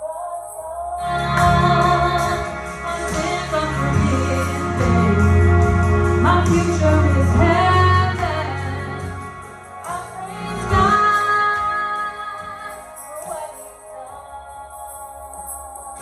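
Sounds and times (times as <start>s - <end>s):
heavy bass: 1.0s - 12.2s
band playing: 1.1s - 12.6s.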